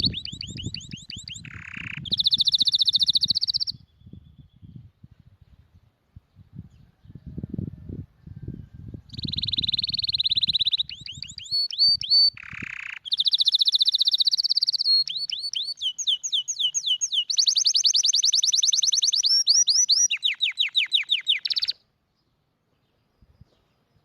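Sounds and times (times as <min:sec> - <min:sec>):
canary singing trills: 0:00.0 - 0:04.8, 0:09.0 - 0:21.9.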